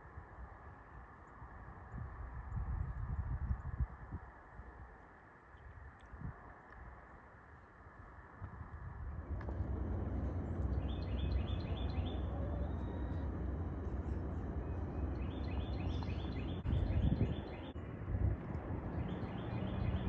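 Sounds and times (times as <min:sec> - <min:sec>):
steady low rumble: 0:08.0 - 0:20.0
small bird singing: 0:10.2 - 0:17.8, 0:19.0 - 0:20.0.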